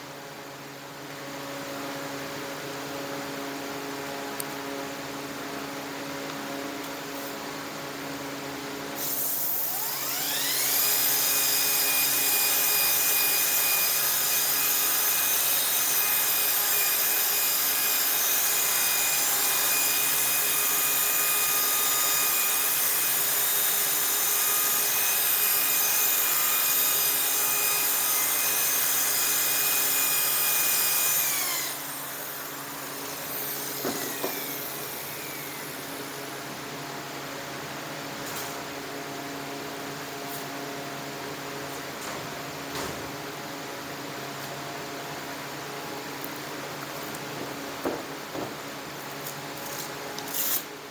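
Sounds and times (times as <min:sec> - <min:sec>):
electric polishing tool whining: 0:09.0 - 0:36.4.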